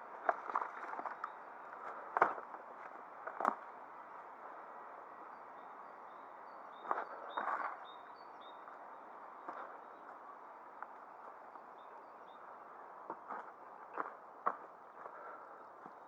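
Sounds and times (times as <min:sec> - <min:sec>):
faint bird chirps: 0:05.0 - 0:10.5.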